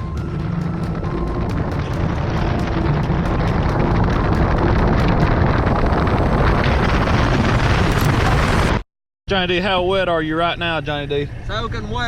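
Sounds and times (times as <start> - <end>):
deep rumble: 0.0 - 8.8
heavy rain pouring: 0.0 - 8.8
wind buffeting microphone: 0.0 - 8.8.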